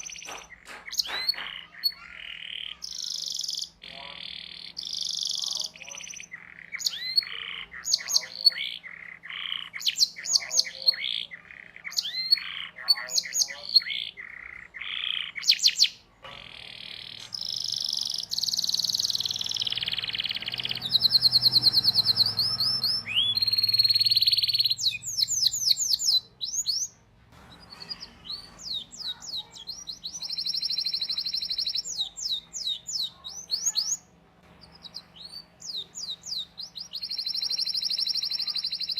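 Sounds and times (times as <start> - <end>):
canary singing with trills: 0.0 - 38.9.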